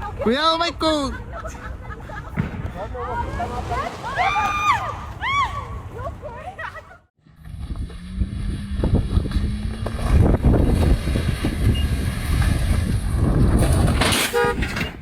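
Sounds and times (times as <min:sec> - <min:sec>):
vehicle engine humming: 0:07.2 - 0:13.8
wind buffeting microphone: 0:07.4 - 0:15.0.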